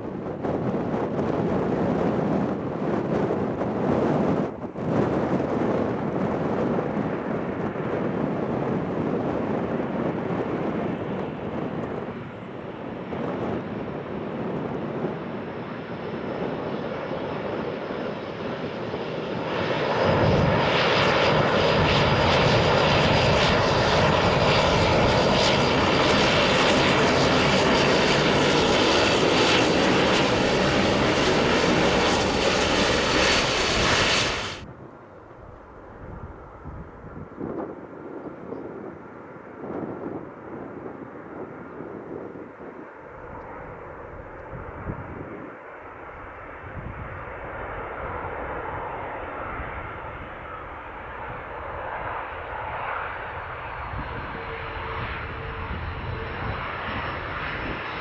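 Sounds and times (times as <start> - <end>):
airliner engines running: 0.0 - 58.0
high engine whine: 21.3 - 35.2.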